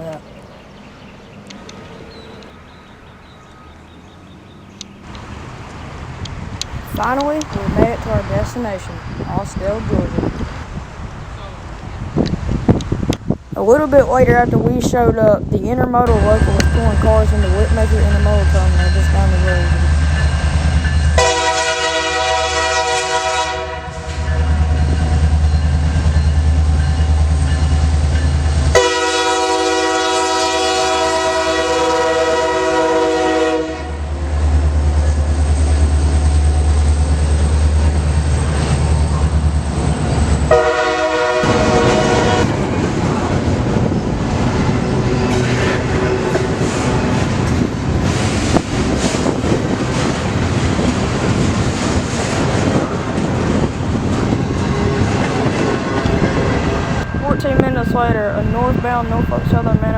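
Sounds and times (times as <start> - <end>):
locomotive engine rumble: 0.0 - 59.9
train wheels rattling on rails: 0.1 - 59.9
locomotive air horn blasts: 21.2 - 24.8, 28.7 - 34.1, 40.5 - 42.6.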